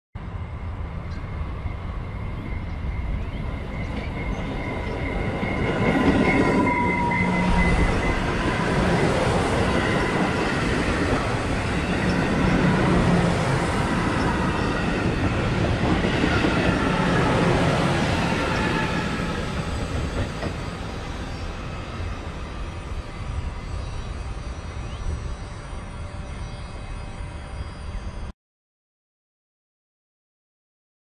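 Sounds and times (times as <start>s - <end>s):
train whine: 0.2s - 28.3s
train wheels rumbling on rails: 0.8s - 25.3s.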